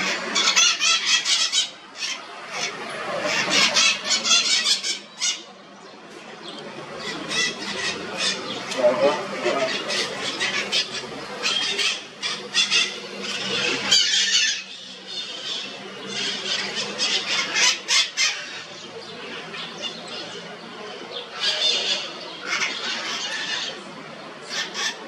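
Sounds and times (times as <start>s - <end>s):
birds chattering: 0.0s - 25.0s.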